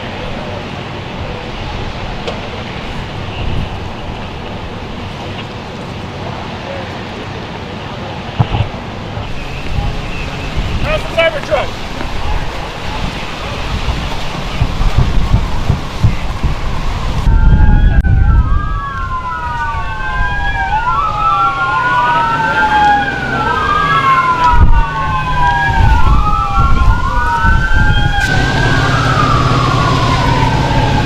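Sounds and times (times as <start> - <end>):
emergency vehicle sirens wailing: 0.0 - 31.0
low vehicle rumble: 8.3 - 31.0
low engine hum: 20.2 - 31.0.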